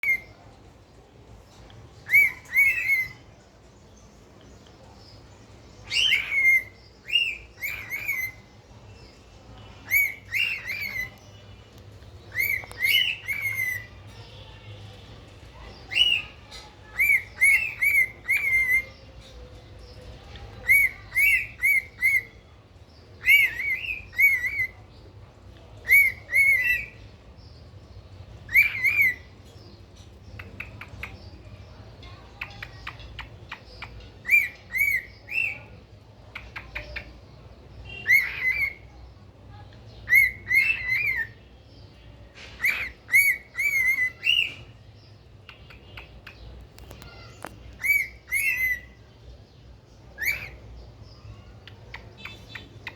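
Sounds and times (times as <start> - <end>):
cockatiel chirping: 0.0 - 0.3, 2.0 - 3.2, 5.8 - 8.4, 9.8 - 11.2, 12.3 - 14.0, 15.9 - 19.0, 20.3 - 22.4, 23.2 - 24.8, 25.8 - 27.0, 28.5 - 29.3, 32.1 - 35.7, 37.9 - 38.8, 40.1 - 41.4, 42.6 - 44.7, 45.5 - 48.9, 50.2 - 50.6.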